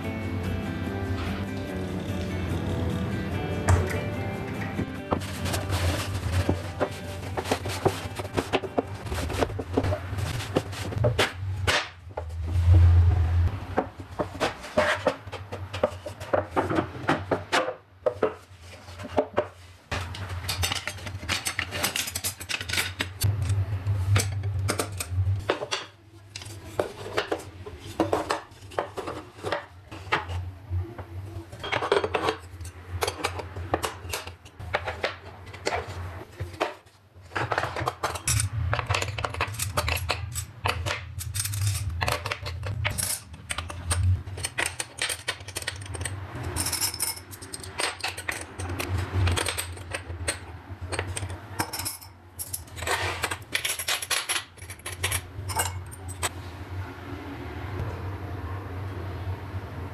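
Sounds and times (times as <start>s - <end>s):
metal cutlery clinking: 20.1s - 23.3s, 31.6s - 35.9s, 37.4s - 56.3s.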